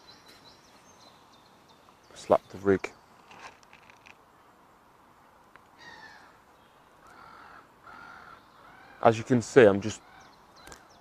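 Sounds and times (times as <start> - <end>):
faint bird calls: 5.7 - 11.0
short harsh bird calls: 5.8 - 9.1, 9.9 - 11.0.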